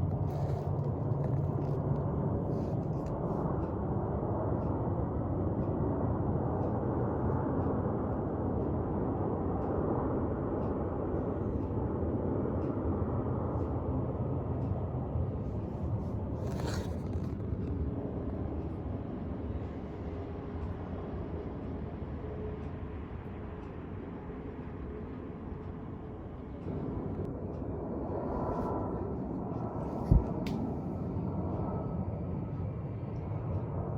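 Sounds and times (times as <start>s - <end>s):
jet airliner engine rumble: 0.0s - 33.9s.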